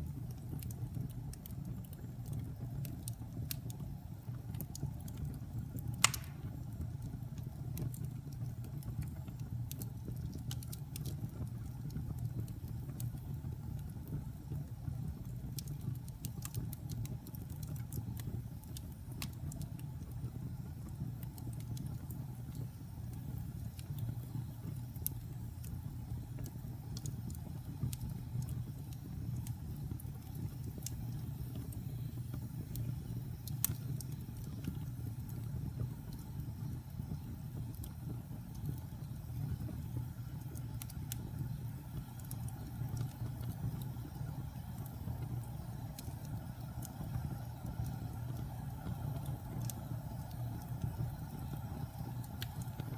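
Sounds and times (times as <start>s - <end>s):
fire roaring: 0.0s - 8.0s, 8.6s - 52.9s
fire crackling: 0.0s - 52.9s
sharp pop of fire: 6.0s - 6.8s.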